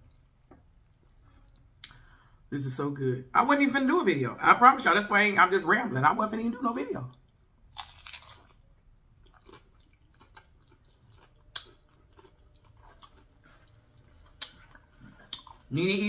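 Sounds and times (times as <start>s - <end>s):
crunchy taco biting and chewing: 7.3s - 15.7s.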